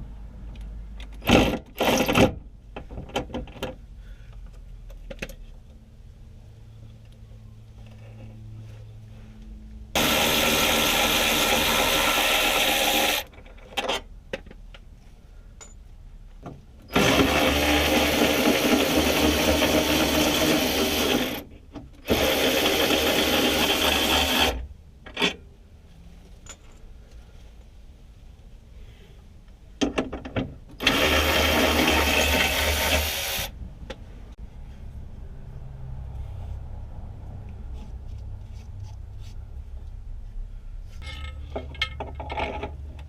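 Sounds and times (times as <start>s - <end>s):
handheld power tool running: 10.0s - 13.3s, 16.9s - 21.4s, 22.1s - 24.6s, 30.8s - 33.5s.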